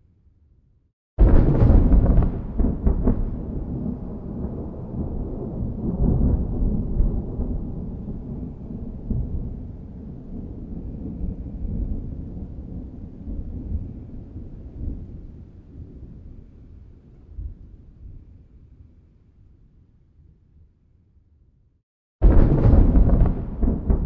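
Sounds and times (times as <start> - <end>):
thunder rumbling: 1.2 - 16.1, 22.2 - 24.0.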